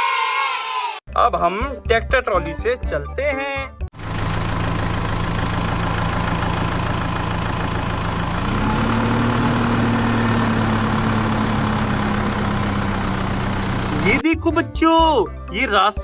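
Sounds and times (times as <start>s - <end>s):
tractor engine running: 3.9s - 14.6s.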